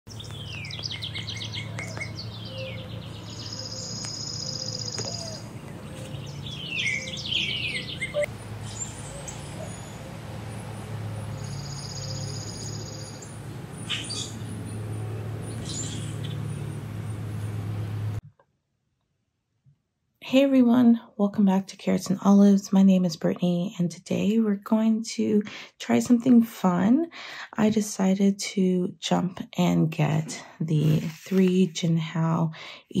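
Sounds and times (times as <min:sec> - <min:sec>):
low hum: 0:00.1 - 0:18.2
songbirds chirping: 0:00.1 - 0:18.2
high buzzy bird trill: 0:00.2 - 0:18.0.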